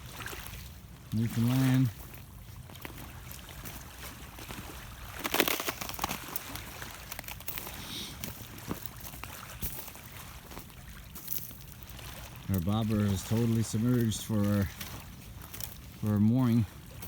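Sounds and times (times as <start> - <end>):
water washing along shore: 0.0 - 17.0
sharp clicks and crunches: 5.2 - 6.4.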